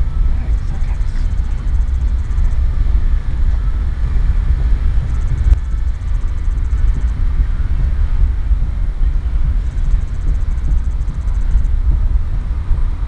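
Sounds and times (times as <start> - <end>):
freight train rumbling: 0.0 - 13.0.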